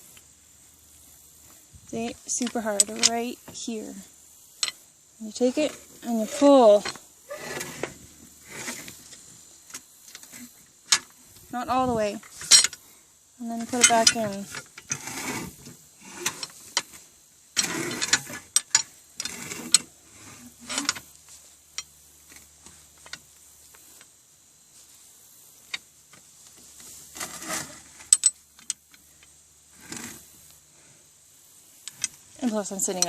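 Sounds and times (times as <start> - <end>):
metal scraping and clanking: 4.6 - 12.8, 13.5 - 17.0, 17.6 - 21.2, 26.8 - 28.7.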